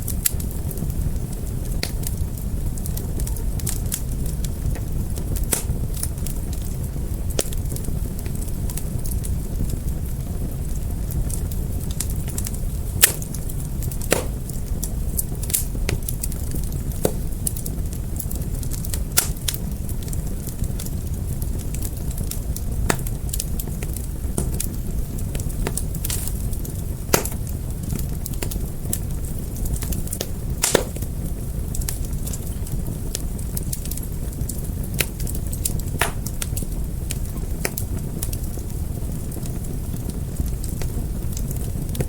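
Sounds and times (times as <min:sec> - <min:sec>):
fire crackling and popping: 0:00.0 - 0:42.0.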